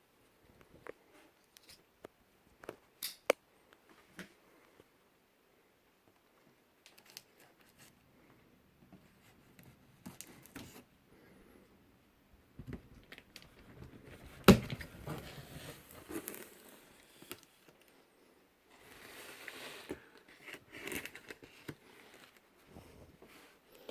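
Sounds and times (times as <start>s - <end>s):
packaging rustling and tearing: 18.9s - 22.4s.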